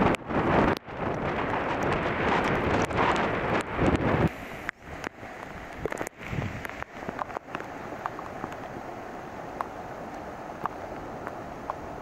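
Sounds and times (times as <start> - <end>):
steady rain: 0.0 - 12.0
wind on microphone: 0.0 - 12.0
raindrops ticking close by: 4.6 - 8.8, 9.5 - 11.9.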